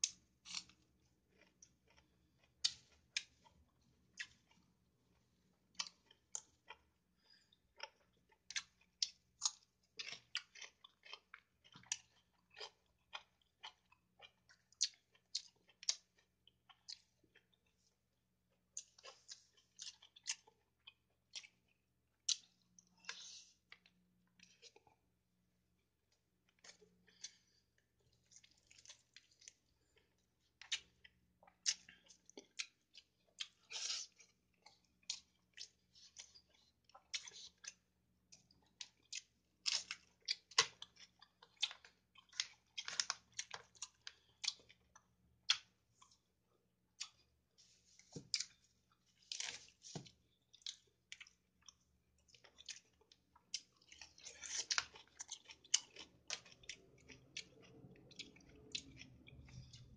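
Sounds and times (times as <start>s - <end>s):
close-up chewing and eating: 0.0s - 59.9s.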